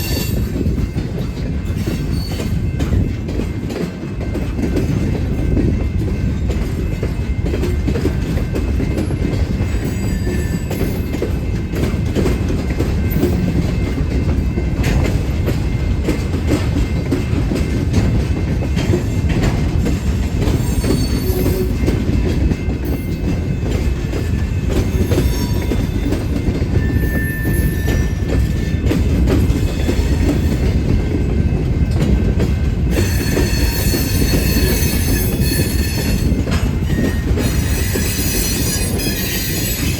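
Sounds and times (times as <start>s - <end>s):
wheels squealing on rail: 0.0s - 3.1s, 9.0s - 11.4s, 20.4s - 30.8s, 32.9s - 39.9s
rumble of train cars: 0.0s - 39.9s.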